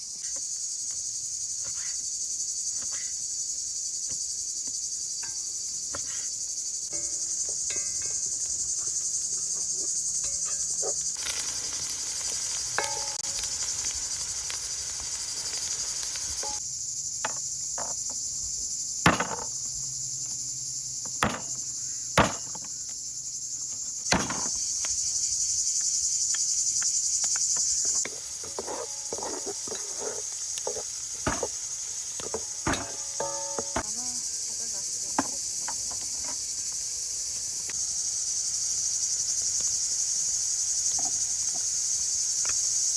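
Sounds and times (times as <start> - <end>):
crickets chirping: 0.0 - 42.9
sharp knocks and clicks of work: 21.0 - 21.6, 22.2 - 22.7, 23.7 - 25.0, 32.2 - 33.9.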